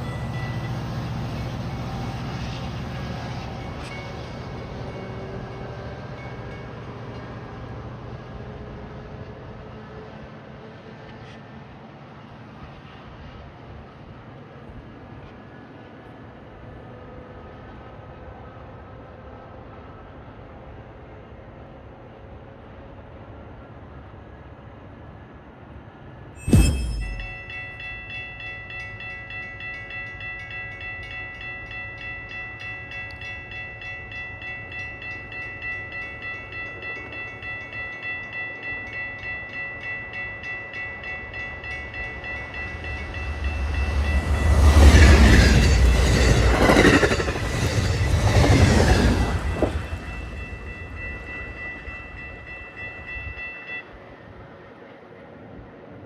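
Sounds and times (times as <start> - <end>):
railroad crossing bell ringing: 0.0 - 8.5, 26.4 - 54.8
train passing at speed: 0.0 - 56.0.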